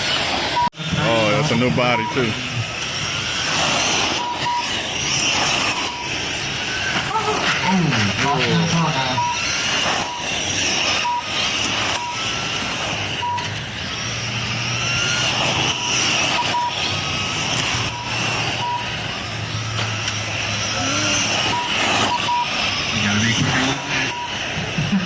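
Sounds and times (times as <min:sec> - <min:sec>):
radio-controlled car motors whining: 0:00.0 - 0:25.0
short electronic beeps: 0:01.8 - 0:02.4, 0:04.1 - 0:04.8, 0:05.5 - 0:06.3, 0:09.1 - 0:12.4, 0:13.1 - 0:13.6, 0:15.2 - 0:16.9, 0:17.7 - 0:19.0, 0:21.2 - 0:22.7, 0:23.6 - 0:24.6.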